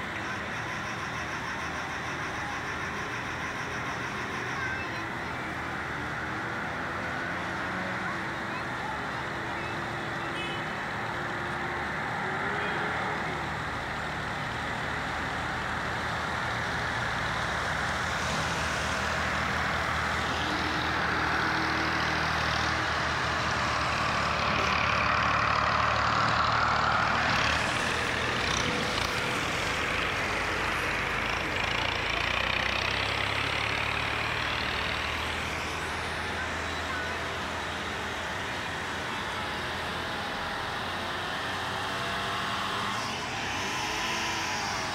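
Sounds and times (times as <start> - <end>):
vehicle engines running: 0.0 - 44.9
tyres hissing on wet road: 14.8 - 44.9.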